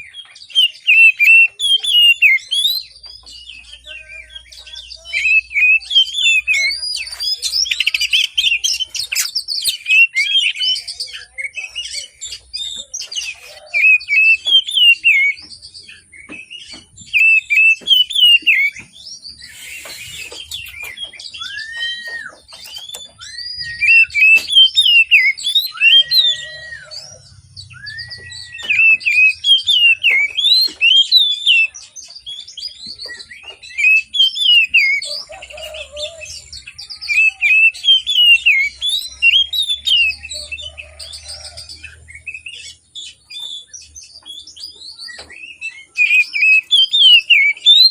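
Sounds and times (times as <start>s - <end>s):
bird warbling song: 0.0s - 47.9s
bird whistles: 17.1s - 31.7s.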